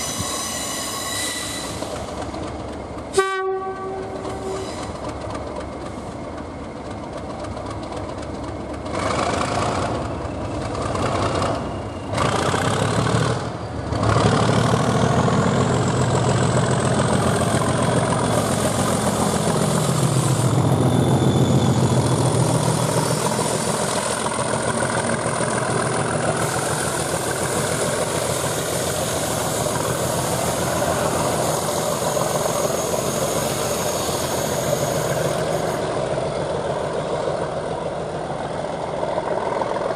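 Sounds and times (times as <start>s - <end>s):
diesel locomotive engine throb: 0.0s - 39.9s.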